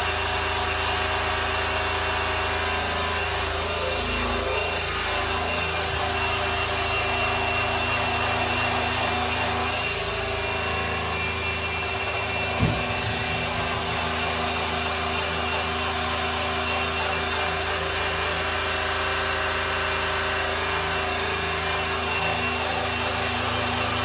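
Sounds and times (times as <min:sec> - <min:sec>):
electric polisher rubbing: 0:00.0 - 0:24.0
low thump: 0:12.5 - 0:14.0.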